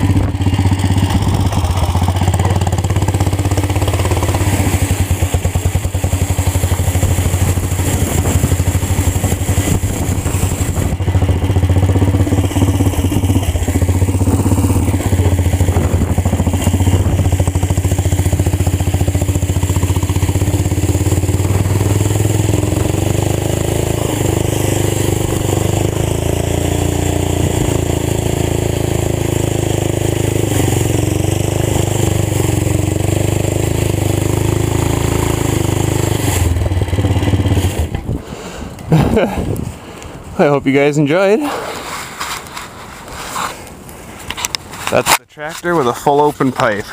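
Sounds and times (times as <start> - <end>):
tractor engine popping: 0.0 - 39.6.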